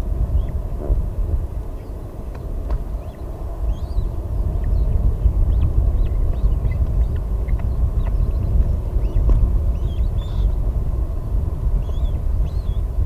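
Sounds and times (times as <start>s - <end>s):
low rumble on microphone: 0.0s - 13.0s
high bird chirps: 5.5s - 10.6s, 11.8s - 12.8s.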